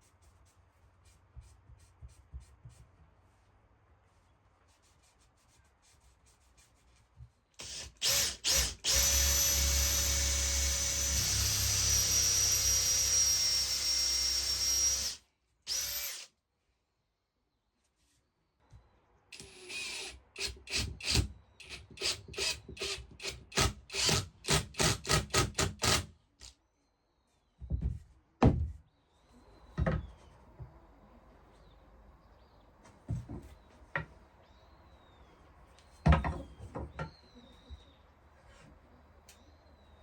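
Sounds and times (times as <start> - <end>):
faint bird chirps: 34.4 - 38.2.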